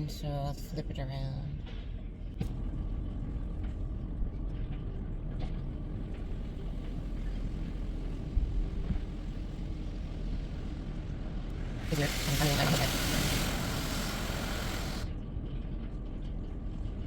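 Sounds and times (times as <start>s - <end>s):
car engine low rumble: 0.0s - 17.0s.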